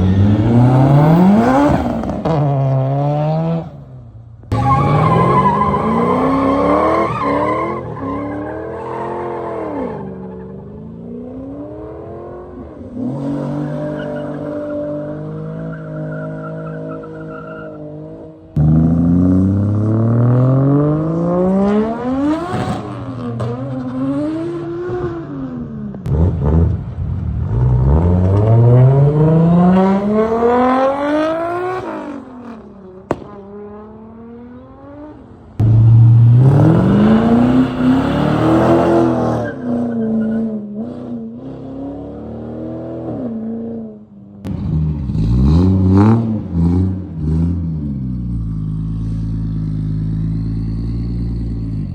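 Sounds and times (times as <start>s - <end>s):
car engine accelerating hard: 35.6s - 39.6s.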